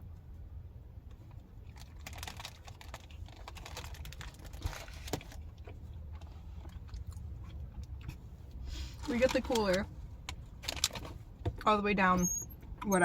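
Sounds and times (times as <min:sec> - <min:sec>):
snack eating clicks and crinkles: 0:01.6 - 0:08.2.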